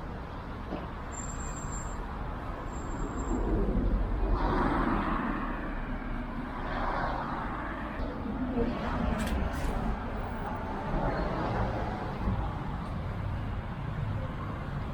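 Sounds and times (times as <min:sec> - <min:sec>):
street traffic noise: 0:00.0 - 0:14.9
thin high squeal: 0:01.1 - 0:02.0.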